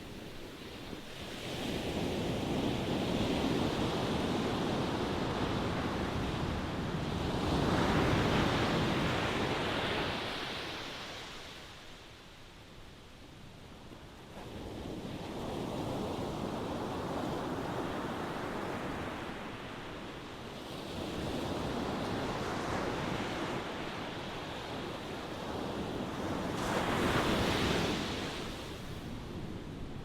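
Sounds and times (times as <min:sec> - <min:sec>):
ocean waves breaking on shore: 0:00.0 - 0:12.1, 0:14.2 - 0:30.0.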